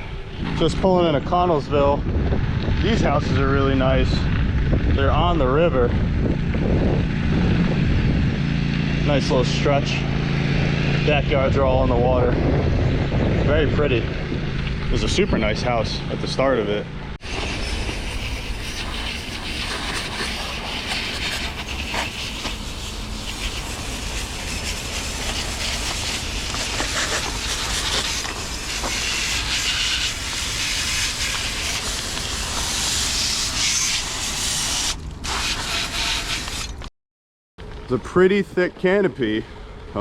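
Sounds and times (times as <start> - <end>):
wind rumbling on microphone: 0.0 - 36.6
bicycle tyres crunching on stone: 17.2 - 36.8.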